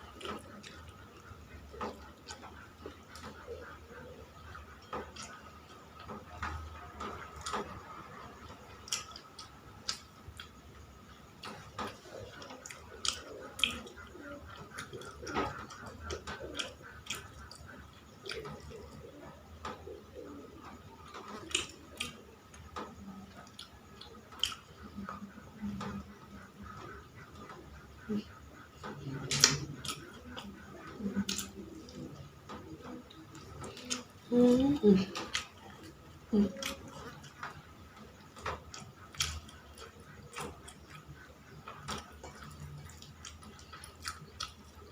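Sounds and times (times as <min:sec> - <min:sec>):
person chewing: 0:08.8 - 0:10.6, 0:11.4 - 0:19.1, 0:21.0 - 0:44.9.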